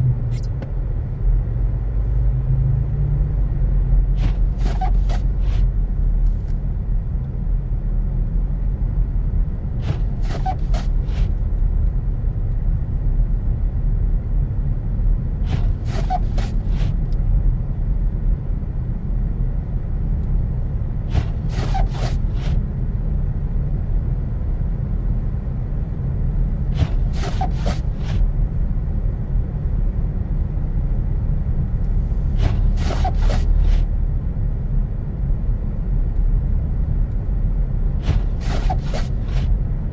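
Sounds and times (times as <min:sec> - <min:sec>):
engine and tyres rumbling: 0:00.0 - 0:39.9
windshield wipers clicking and squeaking: 0:04.2 - 0:06.6, 0:09.8 - 0:11.4, 0:15.5 - 0:17.0, 0:21.1 - 0:22.6, 0:26.5 - 0:28.7, 0:31.8 - 0:33.9, 0:38.0 - 0:39.6.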